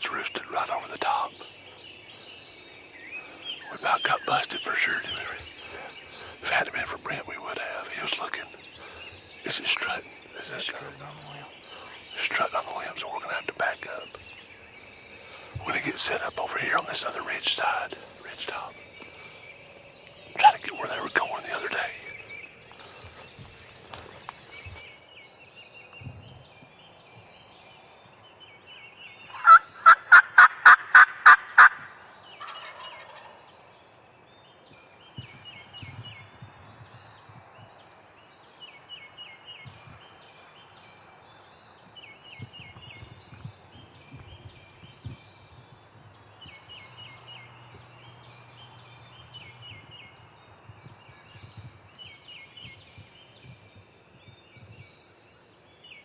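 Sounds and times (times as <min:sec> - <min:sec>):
birds singing: 0:00.0 - 0:56.0
turkey gobbling: 0:29.4 - 0:33.3.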